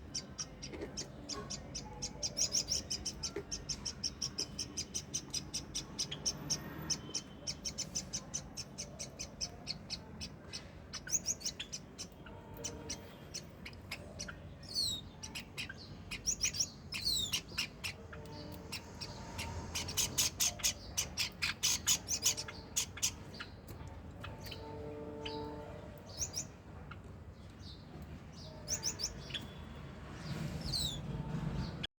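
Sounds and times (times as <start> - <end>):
parrots chirping and chattering: 0.0 - 31.8.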